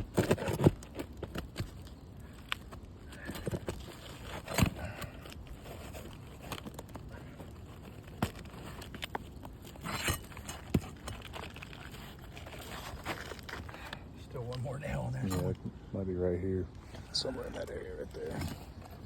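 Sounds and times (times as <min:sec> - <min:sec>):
hand tools prying at shingle: 0:00.0 - 0:13.9.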